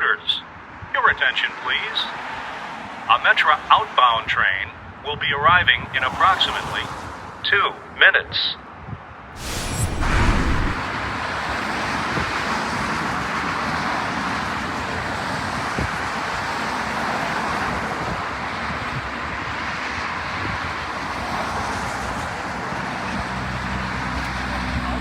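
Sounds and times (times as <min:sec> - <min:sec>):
passing road vehicles: 0:01.6 - 0:03.7, 0:09.4 - 0:25.0.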